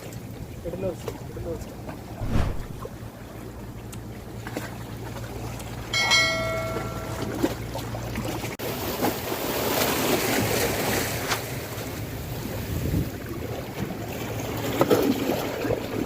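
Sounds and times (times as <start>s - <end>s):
wind: 0.0s - 16.0s
low engine hum: 1.2s - 8.5s
waves washing: 2.1s - 3.0s, 6.0s - 7.7s
metallic bell-like ring: 5.9s - 7.6s.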